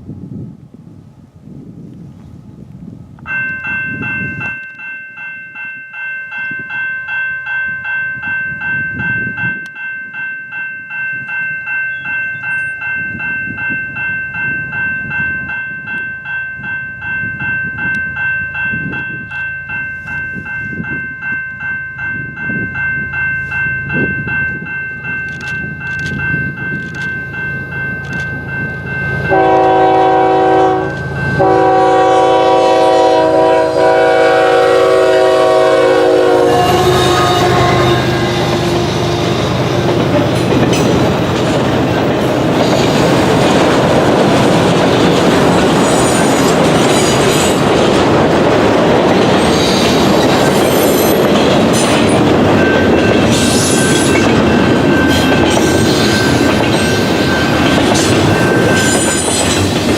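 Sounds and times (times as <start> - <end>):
train cars rumbling: 11.1 - 59.9
locomotive horn blasts: 29.3 - 39.5
wheels clacking over rail joints: 36.6 - 59.9.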